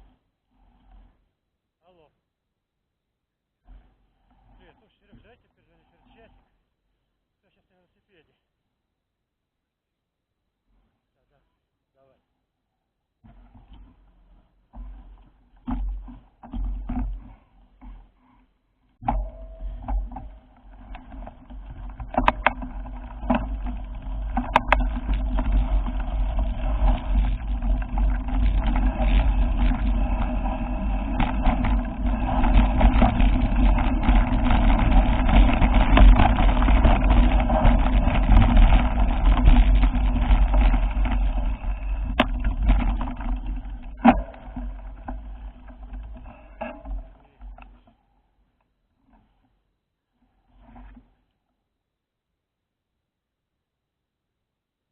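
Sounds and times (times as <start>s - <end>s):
motor vehicle rumble: 19.0s - 47.8s.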